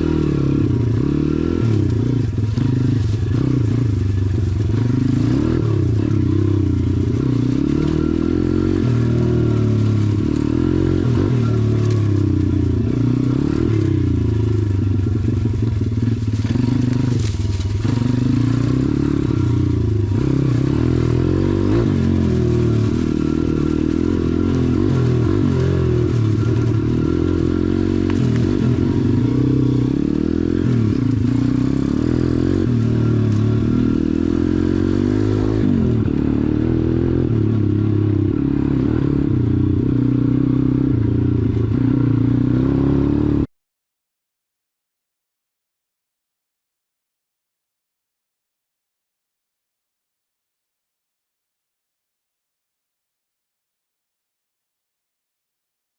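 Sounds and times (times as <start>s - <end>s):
dirt bike engine revving: 0.0s - 43.5s.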